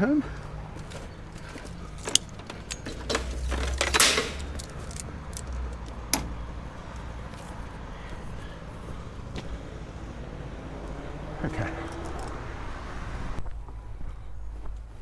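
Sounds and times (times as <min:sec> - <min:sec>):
handling clicks and knocks: 0:00.3 - 0:09.7, 0:10.8 - 0:12.6
rustling noise: 0:00.4 - 0:09.5.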